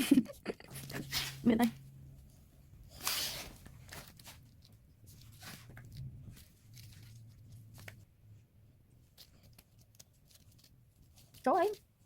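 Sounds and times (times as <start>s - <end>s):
plastic rustling: 2.8s - 8.1s.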